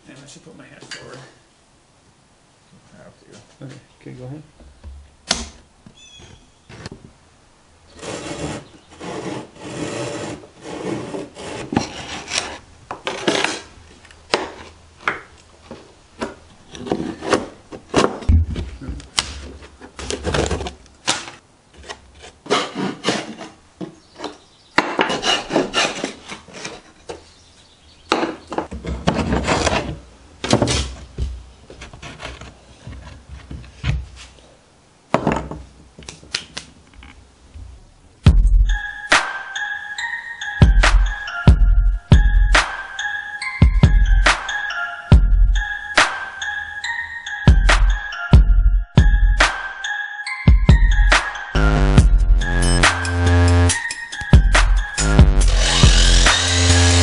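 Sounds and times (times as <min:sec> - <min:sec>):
hand tool working wood: 0:07.9 - 0:13.7, 0:16.6 - 0:27.3, 0:28.2 - 0:34.3.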